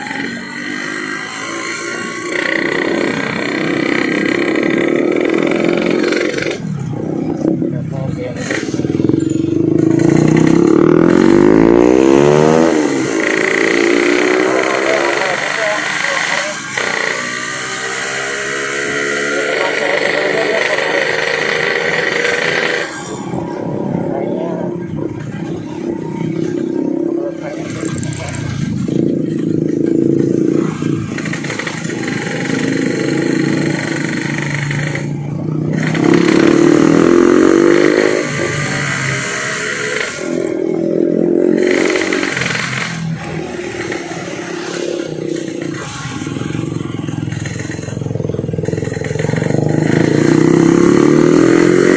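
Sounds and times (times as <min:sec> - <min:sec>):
two-stroke motorcycle engine revving: 0:00.0 - 0:51.9.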